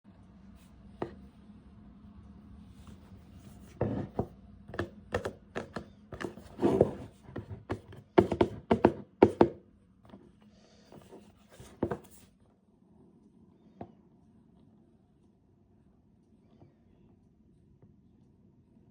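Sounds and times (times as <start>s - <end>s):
taps and thunks: 3.8s - 10.2s.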